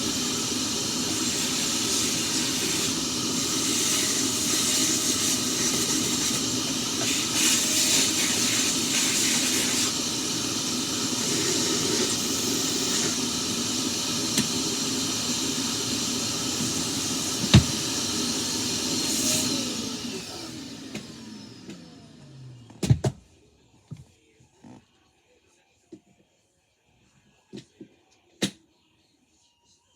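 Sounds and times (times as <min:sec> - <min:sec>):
vacuum cleaner running: 0:00.0 - 0:23.6.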